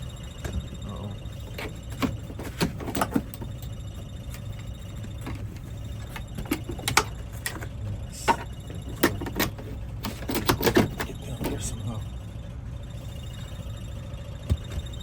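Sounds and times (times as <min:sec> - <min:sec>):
steady low hum: 0:00.0 - 0:15.0
equipment clicking and knocking: 0:01.5 - 0:03.7, 0:04.3 - 0:11.6.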